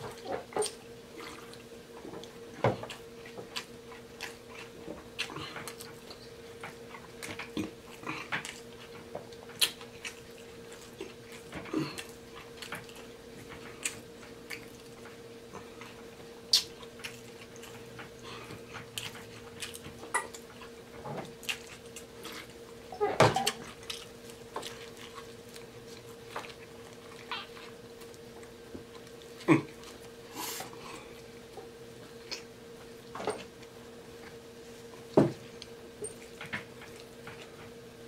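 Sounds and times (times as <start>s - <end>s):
chewing food: 0.0s - 37.8s
wet lip smacks and clicks: 9.5s - 9.9s, 16.5s - 16.8s.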